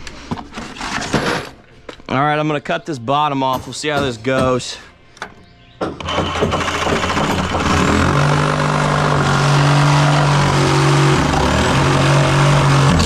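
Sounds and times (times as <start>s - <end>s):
power saw cutting: 6.0s - 13.0s.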